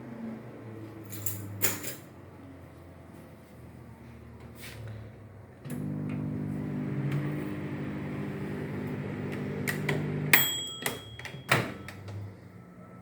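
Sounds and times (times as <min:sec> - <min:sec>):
microwave oven humming: 0:05.6 - 0:12.6
microwave click and beep: 0:08.9 - 0:12.2.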